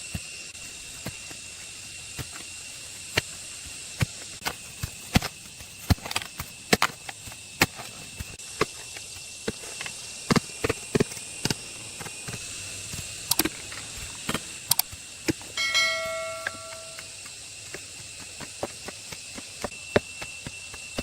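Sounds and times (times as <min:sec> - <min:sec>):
metal tools clinking and knocking: 0:15.6 - 0:17.1
struck metal ringing: 0:15.6 - 0:17.1.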